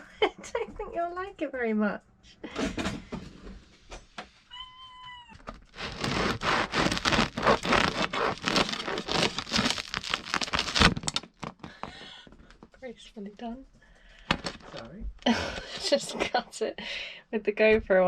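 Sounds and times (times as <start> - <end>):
bread knife sawing through crust: 5.7 - 11.0.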